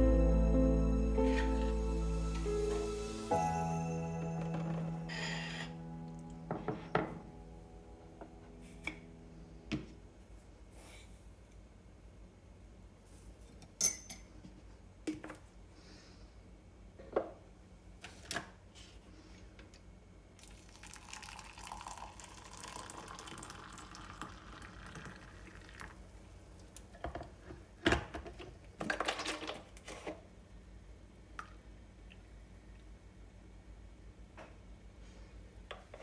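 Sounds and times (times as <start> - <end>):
water running: 20.7 - 26.7.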